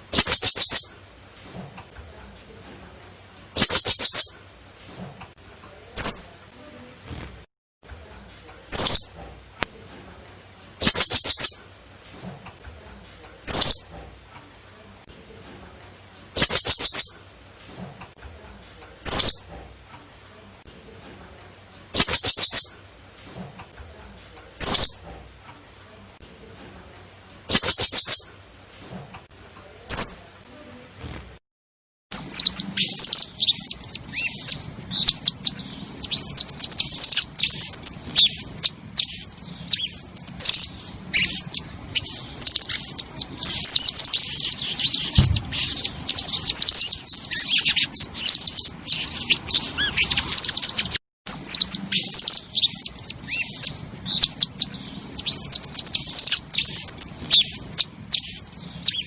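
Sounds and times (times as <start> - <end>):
parrot shrill calls: 0.1 - 1.0, 3.5 - 4.4, 10.8 - 11.6, 13.4 - 13.9, 16.4 - 17.2, 19.0 - 19.5, 21.9 - 22.7, 27.5 - 28.3, 32.1 - 59.0.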